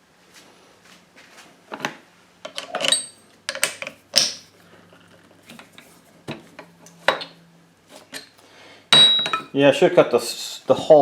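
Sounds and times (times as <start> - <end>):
metal tools clicking and clinking: 2.5 - 4.4, 9.0 - 9.6.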